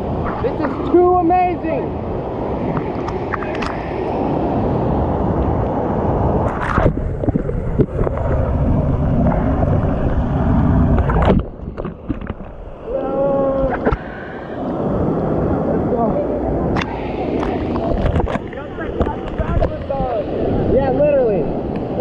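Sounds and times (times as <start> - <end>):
waterfall rushing: 12.4 - 22.0.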